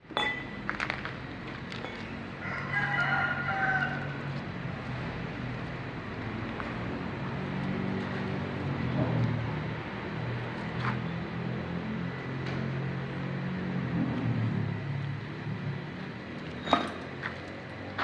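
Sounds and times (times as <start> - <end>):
low engine hum: 0.0 - 18.0
rooster crowing: 2.4 - 4.3.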